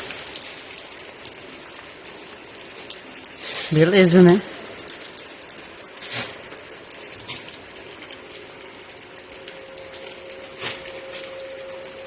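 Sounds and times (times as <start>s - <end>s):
steady rain hiss: 0.0s - 12.0s
raindrop taps close by: 4.6s - 12.0s.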